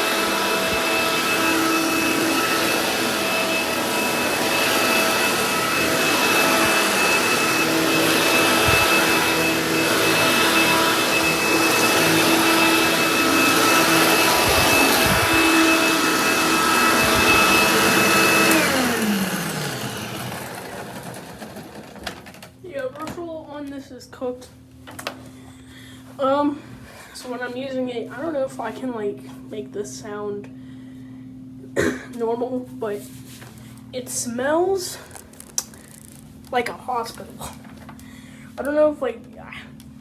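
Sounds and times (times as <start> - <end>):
vacuum cleaner motor whine: 0.0 - 22.6.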